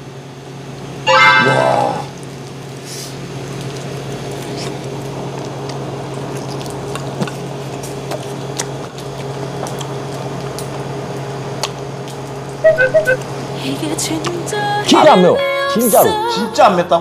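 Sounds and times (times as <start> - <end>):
steady low hum: 0.0 - 15.4
wet chewing mouth sounds: 3.4 - 12.4.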